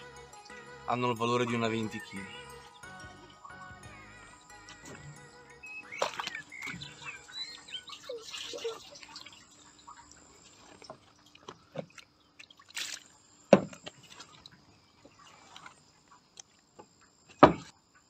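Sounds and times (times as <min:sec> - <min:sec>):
water sounds: 0:03.1 - 0:17.3.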